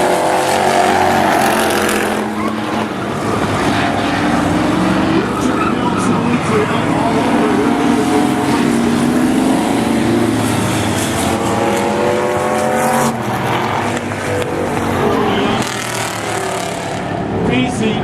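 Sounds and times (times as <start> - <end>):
race car engines revving: 0.0 - 18.0.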